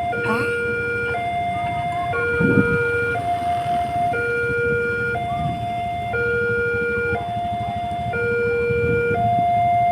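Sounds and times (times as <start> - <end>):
two-tone crossing alarm: 0.0 - 9.9.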